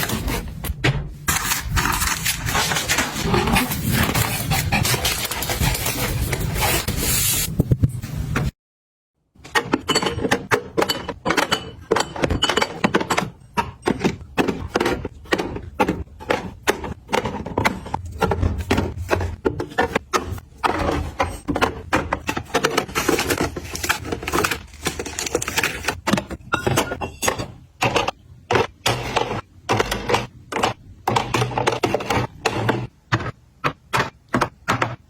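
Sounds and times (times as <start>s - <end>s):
small hard containers clattering: 9.8s - 32.8s.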